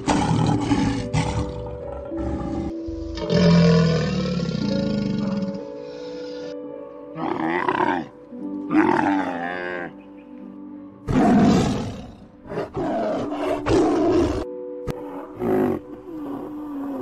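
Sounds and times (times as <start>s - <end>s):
tiger roaring and growling: 0.0s - 5.7s, 11.1s - 17.0s
background music: 0.0s - 17.0s.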